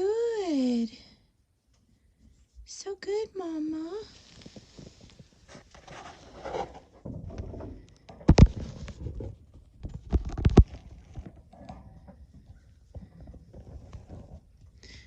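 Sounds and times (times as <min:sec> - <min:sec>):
rustling and shuffling: 0:01.5 - 0:15.0.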